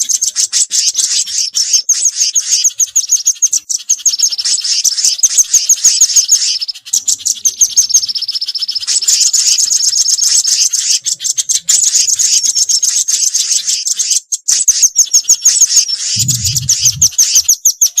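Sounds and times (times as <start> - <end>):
songbirds chirping and trilling: 0.0 - 18.0
brief low rumble: 16.2 - 17.4.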